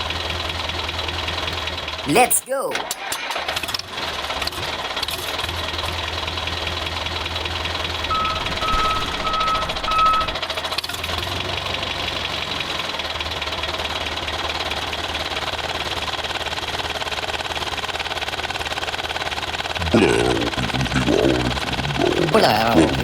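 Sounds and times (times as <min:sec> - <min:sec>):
reversing beeps: 0:08.0 - 0:10.4
vehicle engine running: 0:08.0 - 0:10.4.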